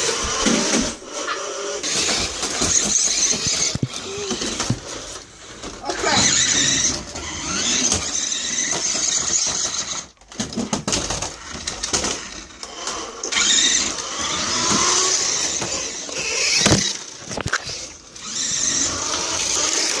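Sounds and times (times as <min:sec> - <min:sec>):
toy car motors whirring: 0:00.0 - 0:20.0.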